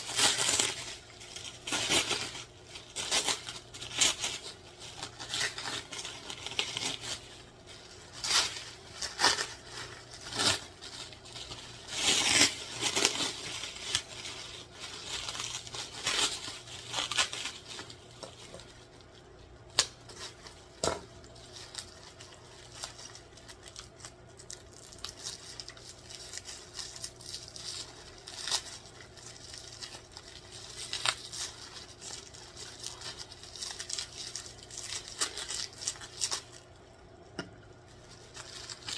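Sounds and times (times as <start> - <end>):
packaging torn and rustled: 0.0 - 36.9, 37.7 - 38.9.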